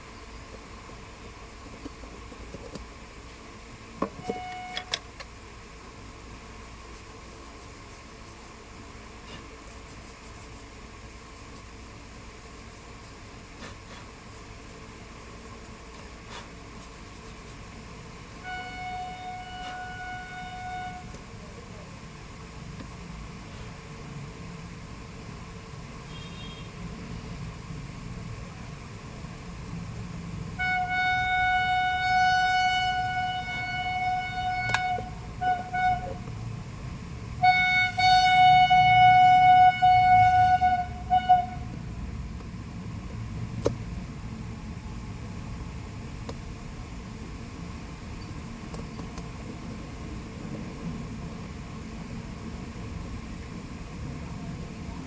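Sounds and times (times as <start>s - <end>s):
steady background hum: 0.0s - 55.0s
horn honking: 4.2s - 5.0s, 18.3s - 21.2s, 26.1s - 26.8s, 30.6s - 36.2s, 37.4s - 41.7s
short horn toots: 18.4s - 21.1s, 26.1s - 26.8s, 30.6s - 36.2s, 37.4s - 41.7s.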